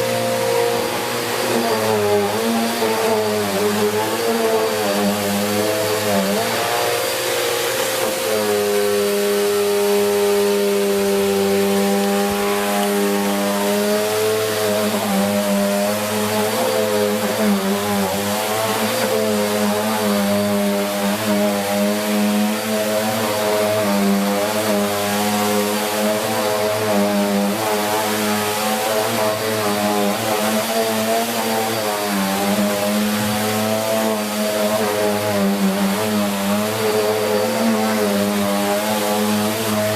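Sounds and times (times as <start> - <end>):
vacuum cleaner on carpet: 0.0 - 39.9.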